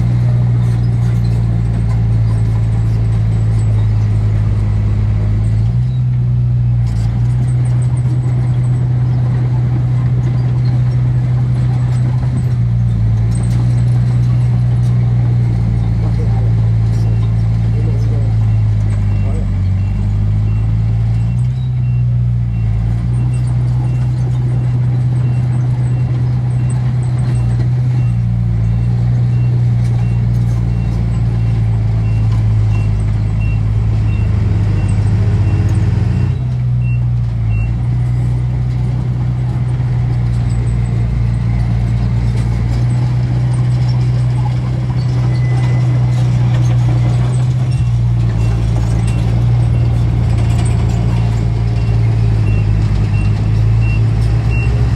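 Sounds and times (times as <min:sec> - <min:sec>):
heavy diesel engine droning: 0:00.0 - 0:54.9
reversing alarm beeping: 0:28.8 - 0:37.8, 0:47.7 - 0:54.8.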